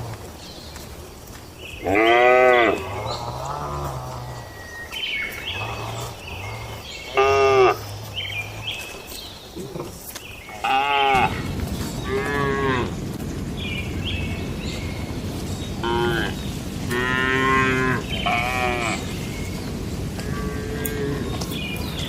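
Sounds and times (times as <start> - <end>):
cattle mooing: 1.8 - 4.6, 5.5 - 8.9, 10.6 - 13.0, 15.8 - 19.1, 20.2 - 21.4
low rushing noise: 11.1 - 22.0.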